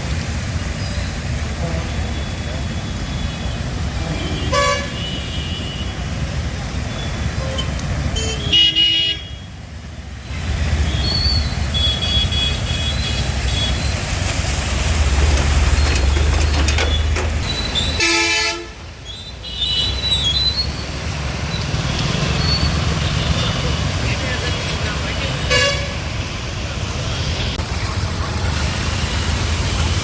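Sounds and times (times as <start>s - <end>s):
road traffic: 0.0s - 30.0s
vehicle horns: 1.6s - 6.1s, 7.2s - 9.5s, 10.9s - 13.8s, 16.8s - 18.8s, 24.4s - 26.1s.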